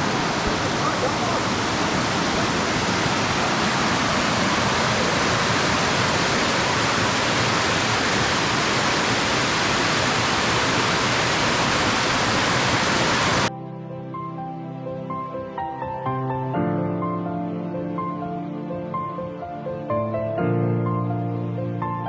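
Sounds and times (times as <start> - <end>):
small waterfall pouring: 0.0 - 13.5.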